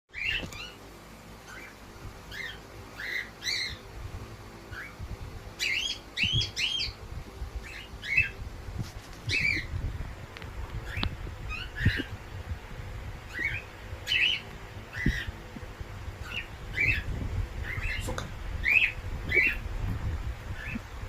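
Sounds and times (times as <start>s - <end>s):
bird chirping: 0.1s - 0.8s, 1.4s - 3.9s, 4.7s - 5.0s, 5.6s - 7.0s, 7.6s - 8.4s, 9.2s - 9.7s, 10.8s - 12.2s, 13.3s - 15.4s, 16.2s - 19.7s.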